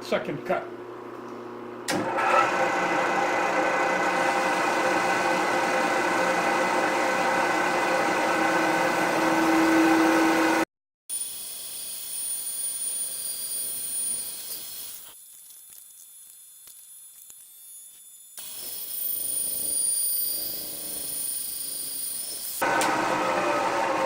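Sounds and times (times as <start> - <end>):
milling machine whining: 1.9 - 10.6, 18.3 - 24.0.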